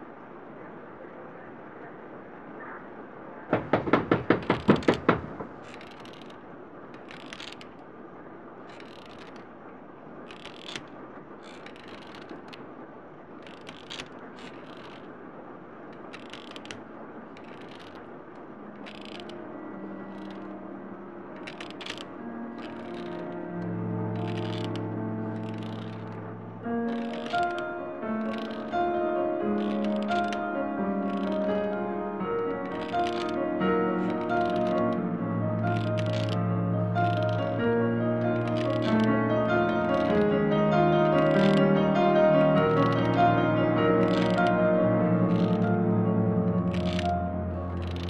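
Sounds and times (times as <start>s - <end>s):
steady hiss: 0.0s - 48.0s
faint clicks: 8.6s - 9.6s, 10.2s - 20.7s, 21.3s - 48.0s
soft music: 18.5s - 48.0s.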